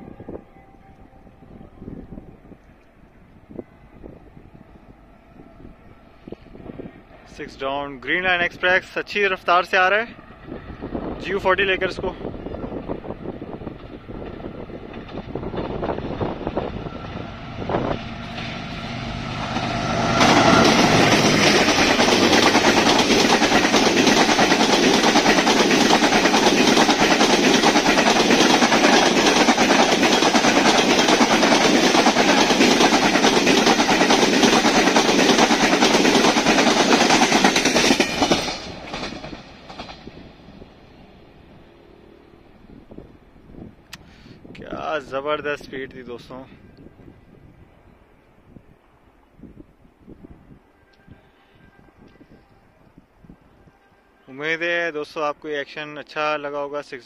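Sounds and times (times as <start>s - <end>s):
diesel locomotive engine passing: 0.0s - 57.0s
train wheels rushing over track: 6.2s - 41.7s.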